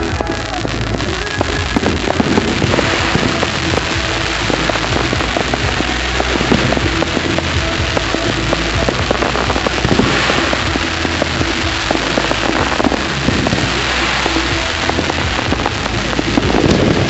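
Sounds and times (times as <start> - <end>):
fireworks crackling and popping: 0.0 - 17.0
music playing: 0.0 - 17.0.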